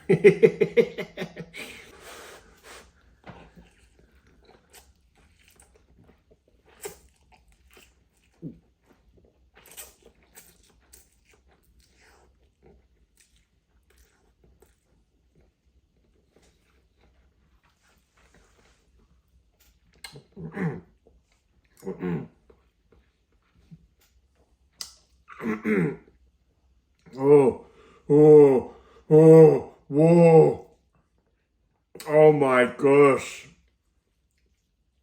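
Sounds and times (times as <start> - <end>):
wet chewing clicks: 3.5 - 17.8, 19.6 - 20.4, 24.0 - 25.2
man humming: 27.1 - 30.6.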